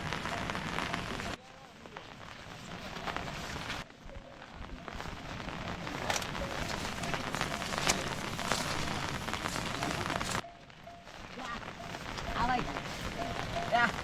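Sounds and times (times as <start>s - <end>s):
steady rain patter: 0.0s - 14.0s.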